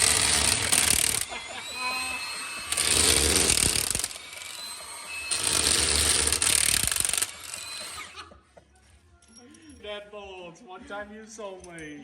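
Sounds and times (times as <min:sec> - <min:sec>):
impact wrench hammering: 0:00.0 - 0:08.2.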